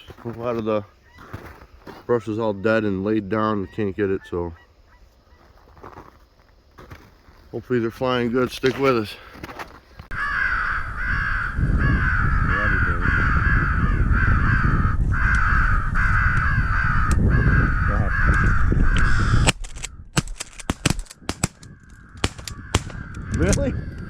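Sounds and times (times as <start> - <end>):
crows cawing: 0.8 - 2.0, 10.1 - 24.0.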